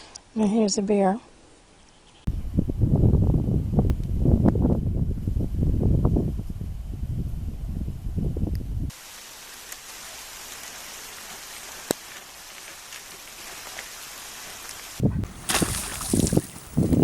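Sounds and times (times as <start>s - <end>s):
wind buffeting: 2.3s - 8.9s, 15.0s - 17.0s
falling water hiss: 8.9s - 17.0s.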